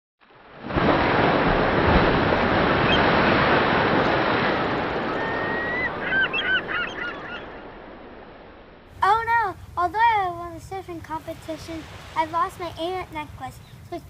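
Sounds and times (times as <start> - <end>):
surf washing in: 0.2 - 14.0
short bird calls: 5.0 - 7.6.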